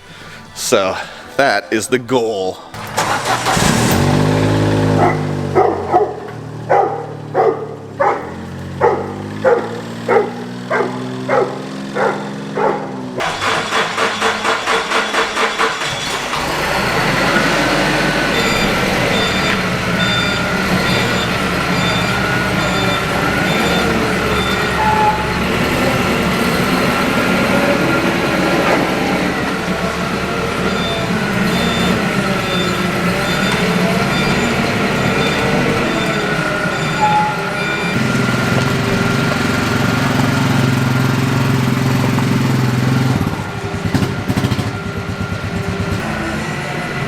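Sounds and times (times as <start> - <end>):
vehicle engine running: 2.8 - 47.0
high short beeps: 18.4 - 25.5, 30.6 - 38.0.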